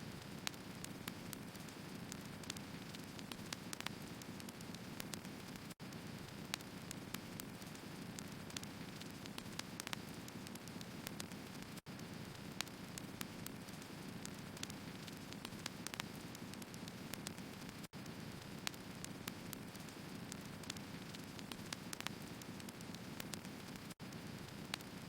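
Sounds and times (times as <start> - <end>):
crackles and pops of logs: 0.2 - 25.0
firewood burning: 0.2 - 25.0.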